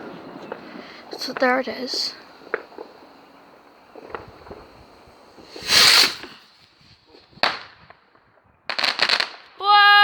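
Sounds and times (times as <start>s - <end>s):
firework rocket launch hiss: 0.7s - 7.8s
firework bursting bang: 3.9s - 6.4s.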